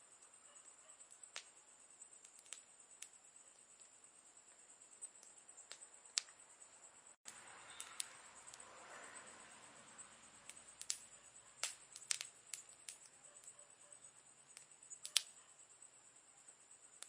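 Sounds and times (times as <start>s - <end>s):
campfire crackling and popping: 1.0s - 4.0s, 5.0s - 6.4s, 7.2s - 8.6s, 10.4s - 13.6s, 14.5s - 15.4s.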